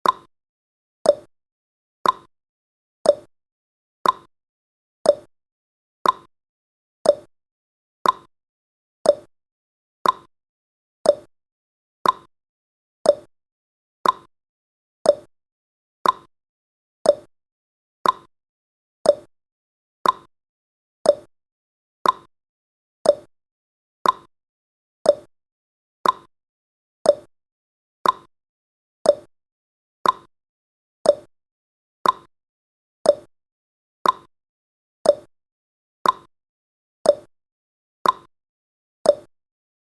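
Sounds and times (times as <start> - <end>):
timer ticking: 0.0 - 0.3, 1.0 - 1.3, 2.0 - 2.3, 3.0 - 3.3, 4.0 - 4.3, 5.1 - 5.3, 6.0 - 6.3, 7.0 - 7.3, 8.0 - 8.3, 9.0 - 9.3, 10.0 - 10.3, 11.0 - 11.3, 12.0 - 12.3, 13.0 - 13.3, 14.0 - 14.3, 15.0 - 15.3, 16.0 - 16.3, 17.0 - 17.3, 18.0 - 18.3, 19.0 - 19.3, 20.0 - 20.3, 21.0 - 21.3, 22.0 - 22.3, 23.0 - 23.3, 24.0 - 24.3, 25.0 - 25.3, 26.0 - 26.3, 27.0 - 27.3, 28.0 - 28.3, 29.0 - 29.3, 30.0 - 30.3, 31.0 - 31.3, 32.0 - 32.3, 33.0 - 33.3, 34.0 - 34.3, 35.0 - 35.3, 36.0 - 36.3, 37.1 - 37.3, 38.0 - 38.3, 39.1 - 39.3.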